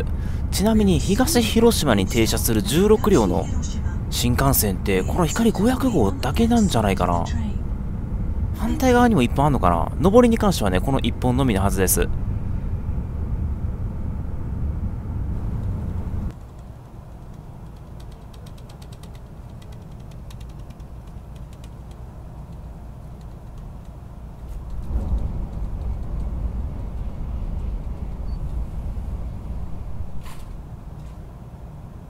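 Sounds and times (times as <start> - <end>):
train rumble inside carriage: 0.0 - 32.0
faint rapid ticking: 16.3 - 24.0, 24.6 - 29.1.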